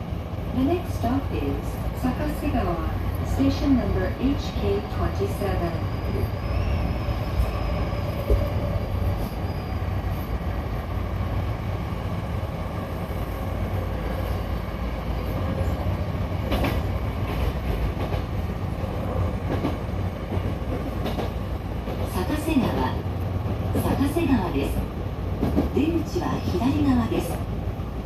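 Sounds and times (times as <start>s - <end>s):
train wheels rumbling on rail: 0.0s - 28.0s
clacks over rail joints: 16.5s - 18.4s, 19.4s - 22.1s, 25.4s - 25.8s.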